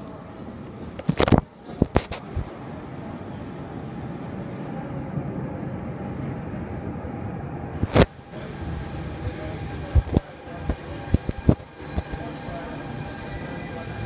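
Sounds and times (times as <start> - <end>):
faint steady whine: 0.0 - 14.0
train rumble in tunnel: 0.0 - 14.0.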